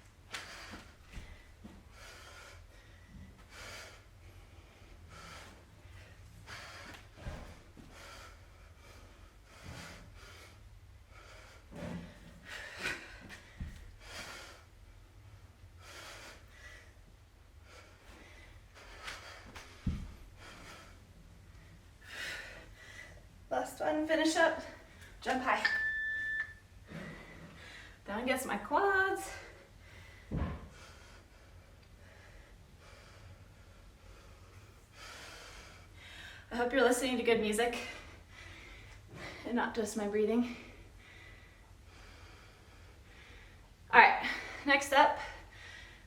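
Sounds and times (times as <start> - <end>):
woman breathing hard: 0.4 - 23.5, 29.4 - 36.5, 37.8 - 39.5, 40.6 - 46.0
feet landing with dull thumps: 19.5 - 20.2.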